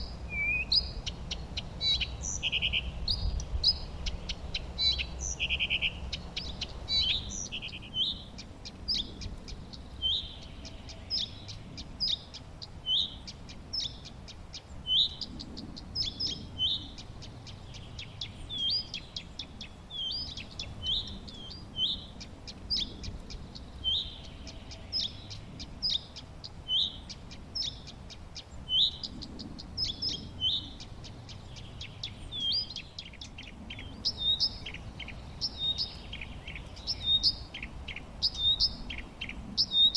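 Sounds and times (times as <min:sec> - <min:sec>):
birds chirping and singing: 0:00.0 - 0:39.9
high ticking bird calls: 0:00.0 - 0:39.9.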